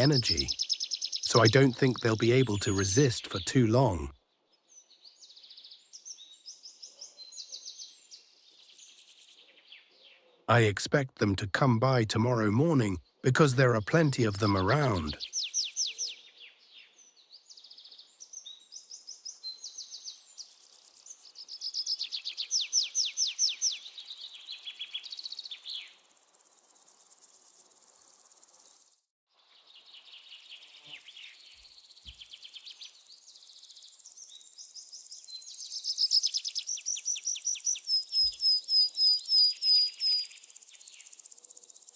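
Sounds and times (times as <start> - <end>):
small birds trilling and chirping: 0.0 - 3.1, 3.8 - 10.5, 14.7 - 41.9.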